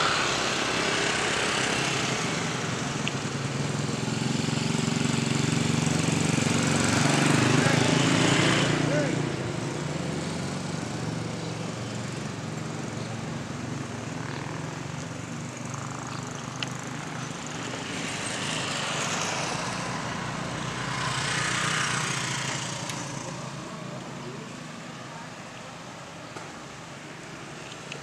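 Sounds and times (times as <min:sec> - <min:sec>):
road vehicles passing: 0:00.0 - 0:28.0.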